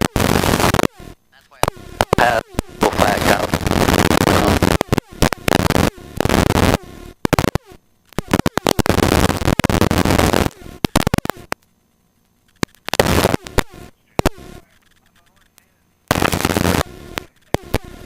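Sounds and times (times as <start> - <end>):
helicopter cabin rushing noise: 2.1 - 4.7.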